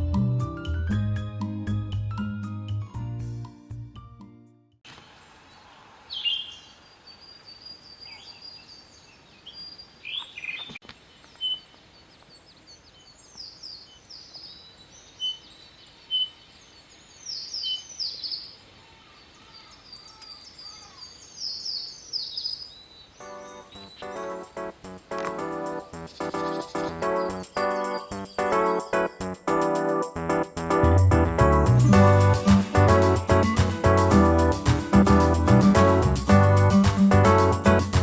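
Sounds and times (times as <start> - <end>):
bird chirps: 5.4 - 18.6, 19.3 - 29.1
birds singing: 5.4 - 29.0.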